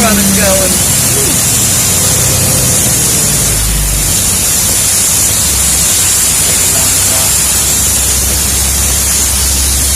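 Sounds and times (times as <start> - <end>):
loud rushing hiss: 0.0 - 9.9
truck engine drone: 0.0 - 9.9.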